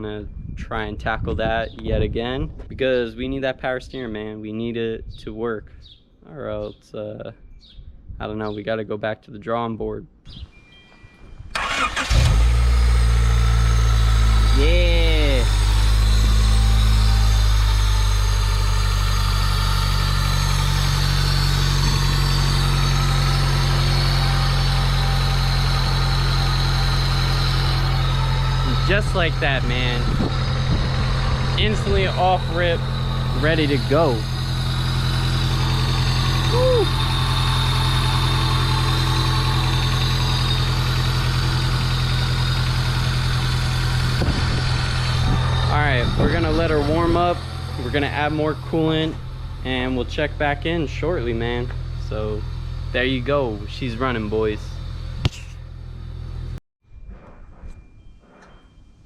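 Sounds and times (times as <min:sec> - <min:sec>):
car engine idling: 0:11.6 - 0:56.6.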